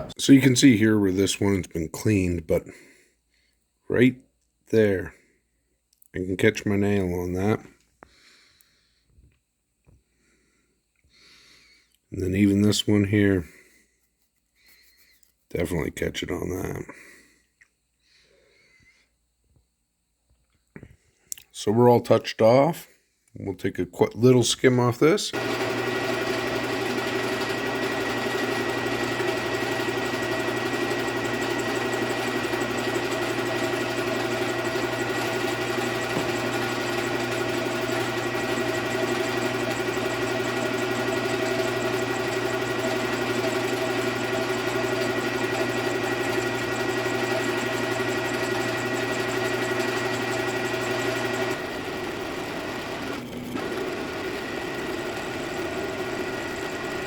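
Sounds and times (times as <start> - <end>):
milling machine cutting metal: 25.4 - 57.0.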